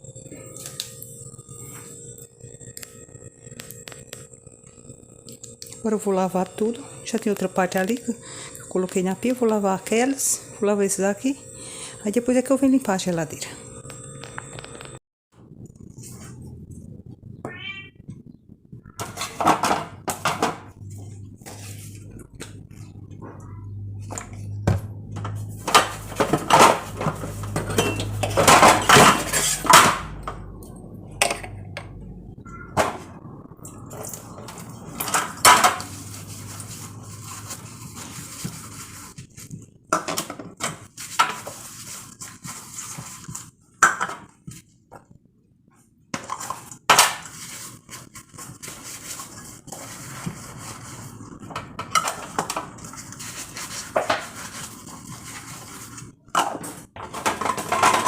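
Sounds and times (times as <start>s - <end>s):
dishes clattering and clinking: 25.2s - 30.1s, 56.4s - 58.0s.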